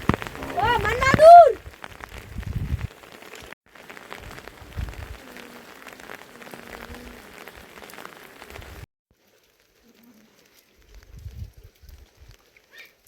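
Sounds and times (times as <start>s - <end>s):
heavy rain falling: 0.0s - 8.9s.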